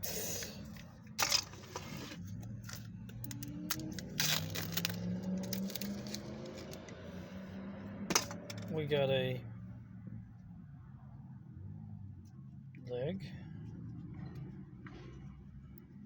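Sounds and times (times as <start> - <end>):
plastic parts clicking and rattling: 0.7 - 6.8, 8.1 - 8.7.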